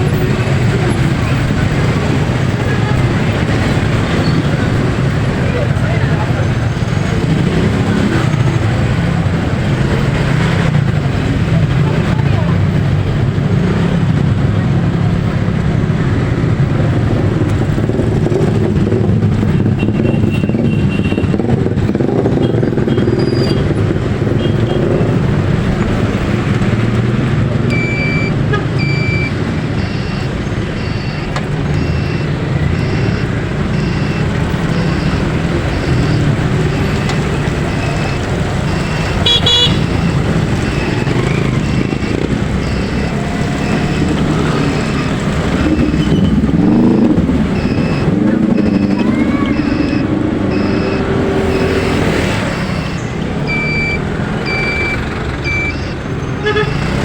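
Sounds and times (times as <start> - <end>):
vehicle engine and road noise: 0.0 - 57.0
regular beeping: 17.7 - 57.0.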